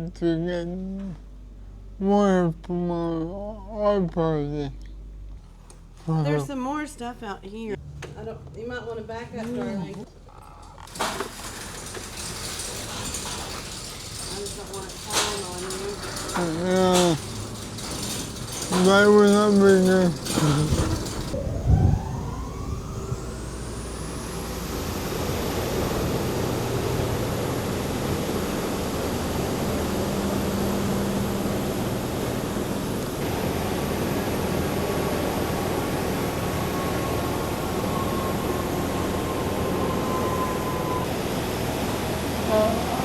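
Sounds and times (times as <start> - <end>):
machine whining: 10.3 - 43.0.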